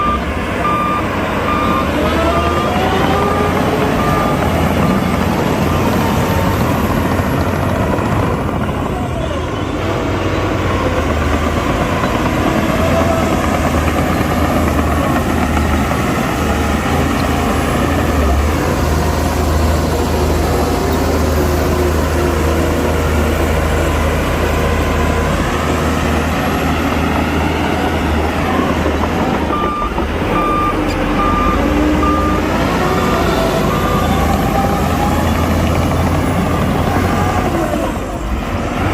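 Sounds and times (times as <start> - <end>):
reversing alarm beeping: 0.0 - 5.7, 28.5 - 35.6
diesel machinery engine drone: 0.0 - 38.9.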